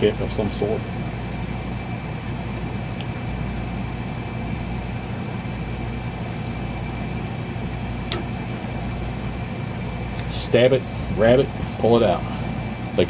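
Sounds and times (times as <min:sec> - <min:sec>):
high whine: 0:00.0 - 0:13.0
low machine hum: 0:00.0 - 0:13.0.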